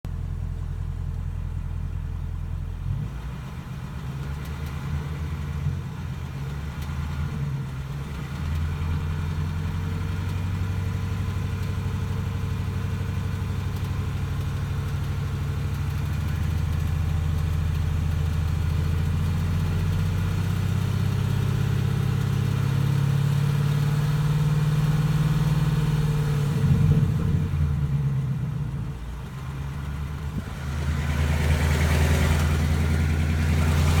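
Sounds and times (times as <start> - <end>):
engine rattle and tick: 0.1 - 34.0
car engine running: 7.8 - 26.0, 26.7 - 34.0.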